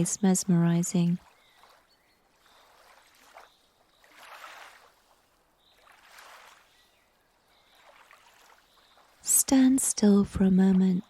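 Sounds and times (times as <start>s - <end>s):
small waves lapping at shore: 0.0s - 11.0s.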